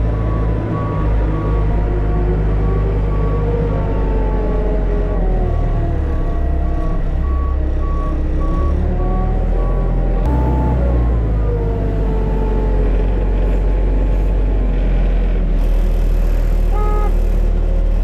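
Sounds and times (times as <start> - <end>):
vehicle backup alarm beeping: 0.0 - 1.7, 6.0 - 12.9
heavy engine rumbling: 0.0 - 18.0.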